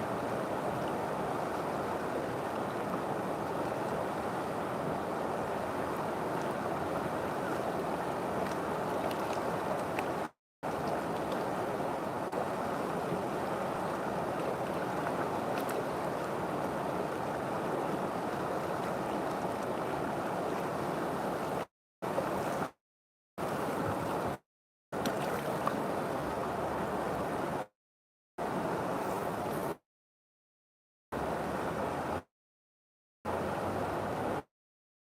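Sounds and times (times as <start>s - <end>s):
river water rushing: 0.0s - 22.7s, 33.3s - 34.4s.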